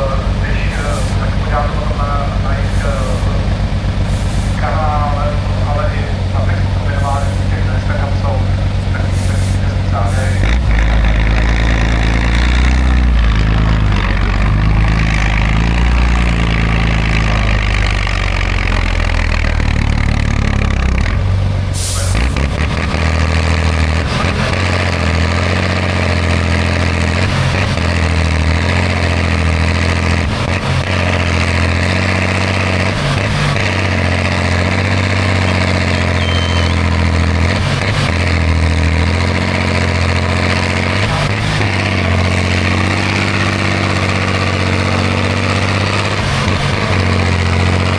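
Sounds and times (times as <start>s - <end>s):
diesel truck engine running: 0.0s - 47.9s
burst of hiss: 4.1s - 4.6s, 9.0s - 9.6s, 21.7s - 22.2s.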